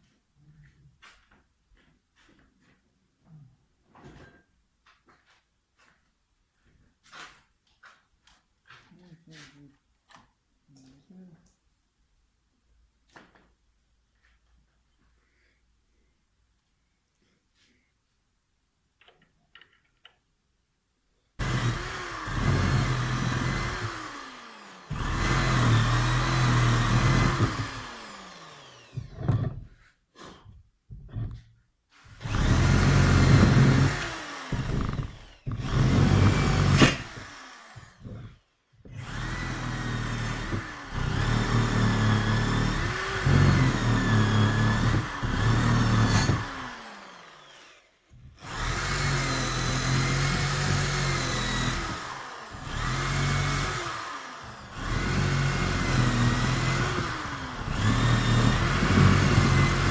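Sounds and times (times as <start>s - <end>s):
electric power tool whining: 21.4s - 29.8s, 32.1s - 59.9s.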